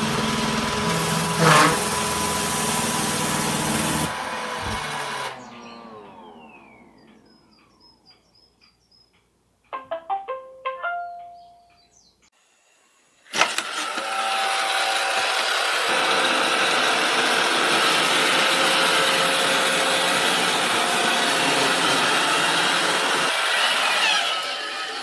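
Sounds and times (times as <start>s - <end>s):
robot vacuum motor whirring: 0.0s - 7.6s.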